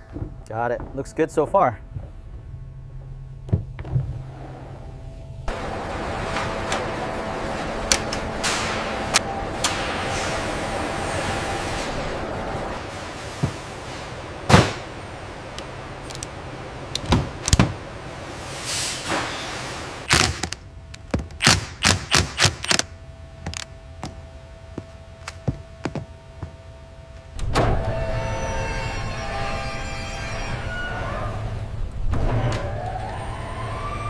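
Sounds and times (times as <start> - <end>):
steady running hum: 0.0 - 18.5, 20.1 - 28.4
loud machine running: 5.5 - 12.8.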